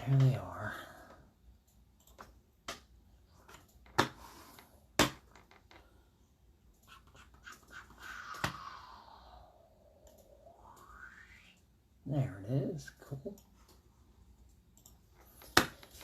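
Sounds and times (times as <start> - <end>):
drawn-out falling pitch sound: 7.4 - 11.9.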